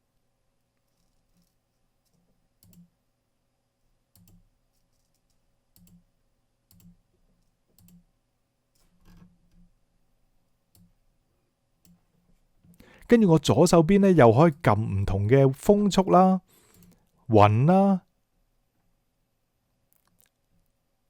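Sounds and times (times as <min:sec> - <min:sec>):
computer mouse clicks: 0:00.9 - 0:02.9, 0:04.1 - 0:06.0, 0:06.7 - 0:07.0, 0:07.7 - 0:08.1.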